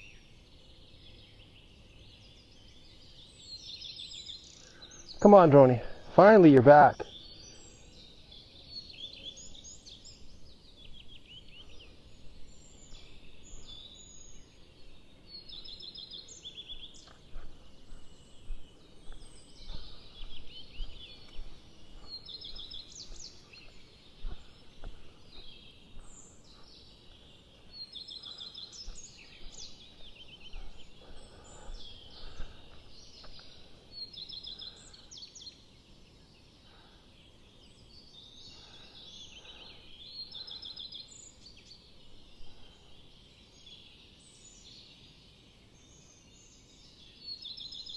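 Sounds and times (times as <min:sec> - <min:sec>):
songbirds singing: 0:00.0 - 0:47.9.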